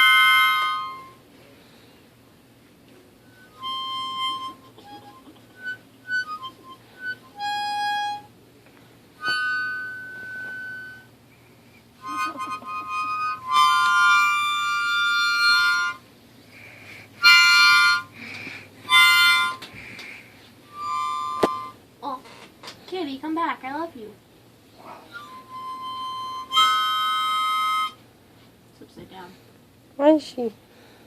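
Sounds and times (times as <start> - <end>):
harmonica playing: 0.0 - 1.3, 3.2 - 8.4, 9.2 - 21.8, 24.8 - 28.2.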